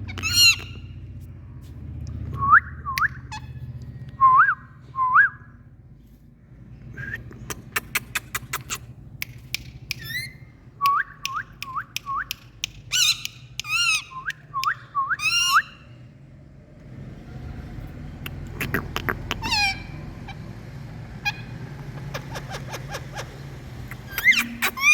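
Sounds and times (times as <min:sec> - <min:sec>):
parrots calling: 0:00.0 - 0:01.0, 0:09.9 - 0:10.5, 0:12.9 - 0:14.3, 0:15.2 - 0:15.9, 0:18.2 - 0:24.9
sharp clicks: 0:07.3 - 0:14.8.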